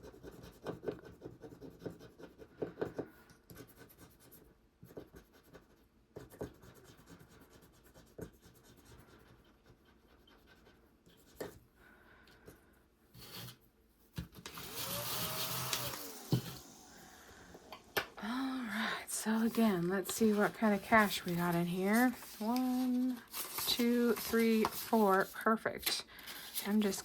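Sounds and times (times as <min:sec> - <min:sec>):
scraping scratch-off card: 0:19.4 - 0:25.3.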